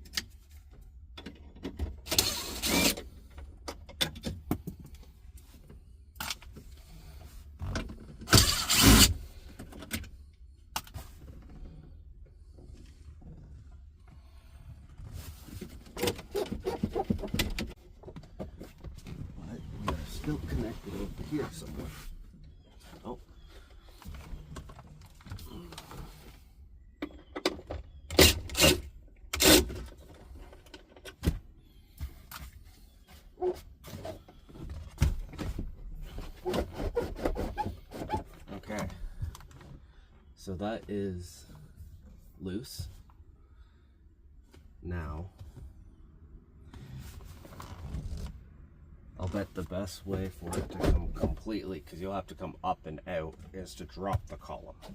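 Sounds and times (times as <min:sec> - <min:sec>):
trim scraping rustles: 0:36.0 - 0:39.0.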